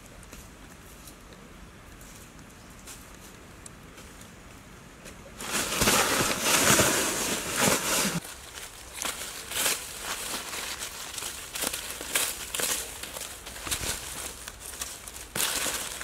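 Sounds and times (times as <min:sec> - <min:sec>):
leaves and twigs crackling: 0:00.0 - 0:16.0
dry leaves crunching and rustling: 0:05.4 - 0:16.0.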